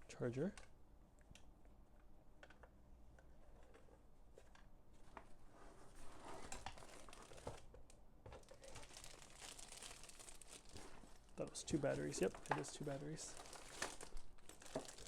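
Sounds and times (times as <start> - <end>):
packaging rustling: 6.1 - 7.7, 8.4 - 15.0.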